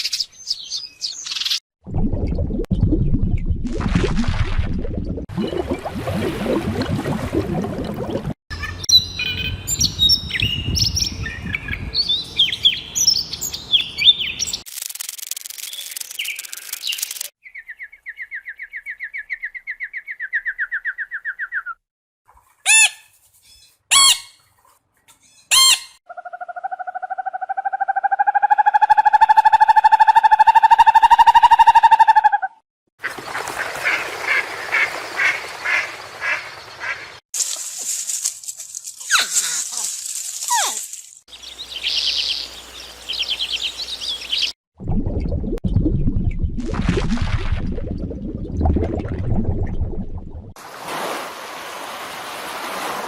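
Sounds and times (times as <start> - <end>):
small birds chirping: 8.5 - 14.7, 15.6 - 21.7, 40.5 - 44.6.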